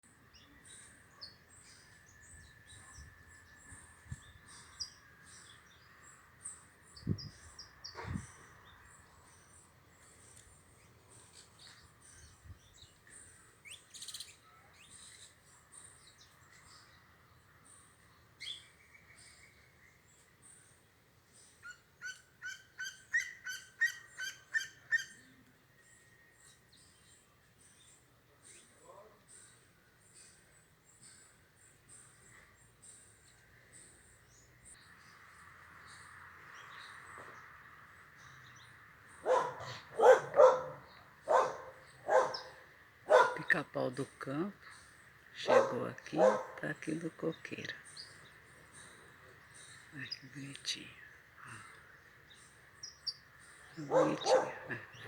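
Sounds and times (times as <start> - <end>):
birds chirping and calling: 0.3 - 20.8, 21.4 - 55.0
bird giving rapid calls: 52.9 - 55.0.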